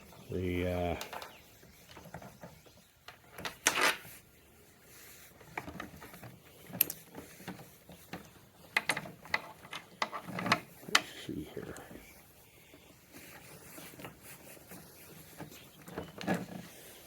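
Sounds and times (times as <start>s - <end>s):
clicks and knocks of hand tools: 5.6s - 11.1s.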